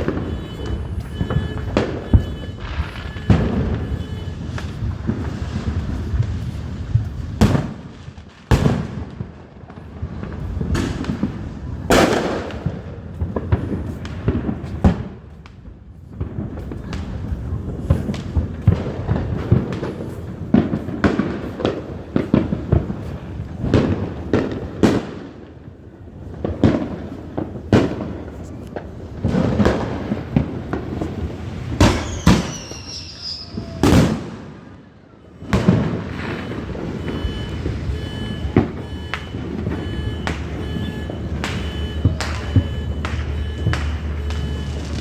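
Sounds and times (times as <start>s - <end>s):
continuous rumble: 0.0s - 32.1s, 33.6s - 45.0s
fireworks bangs and crackles: 0.0s - 45.0s.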